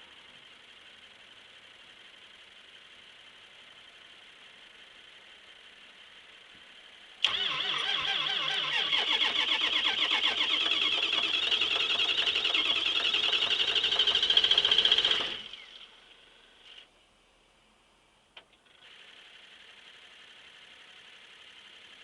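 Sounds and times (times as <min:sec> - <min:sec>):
diesel engine cranking on starter: 0:07.2 - 0:16.0.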